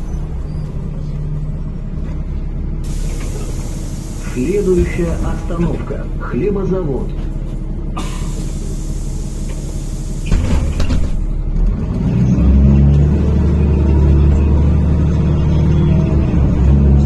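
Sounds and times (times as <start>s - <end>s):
bus engine drone: 0.0s - 17.0s
bus doors shutting clunk: 2.0s - 13.5s
pneumatic doors air hiss: 2.8s - 6.2s, 8.0s - 11.3s.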